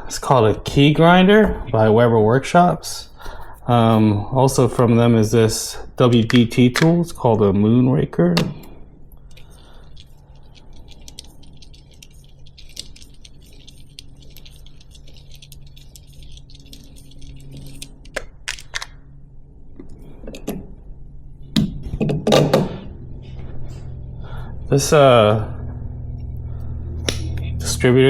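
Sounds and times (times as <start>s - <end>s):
faint scratchy stirring of coffee grounds: 9.3s - 18.0s.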